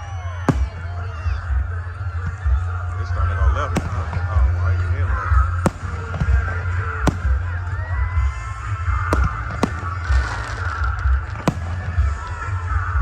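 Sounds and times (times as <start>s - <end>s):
deep fireworks rumble: 0.0s - 13.0s
music playing: 0.0s - 13.0s
fireworks cracking: 0.5s - 1.6s, 3.7s - 13.0s.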